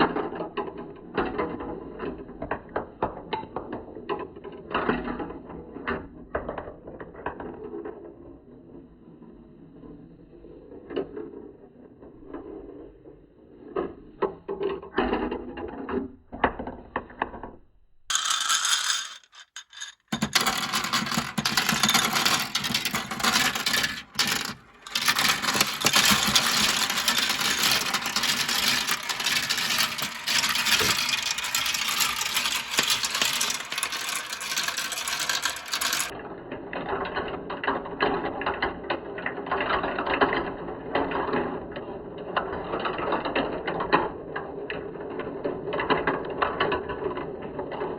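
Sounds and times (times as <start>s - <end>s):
marbles rolling down plastic slopes: 18.1s - 36.2s.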